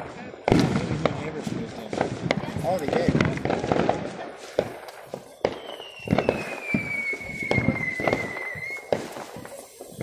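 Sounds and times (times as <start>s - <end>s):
firework bangs and pops: 0.0s - 10.0s
firework whistle falling in pitch: 5.3s - 9.1s.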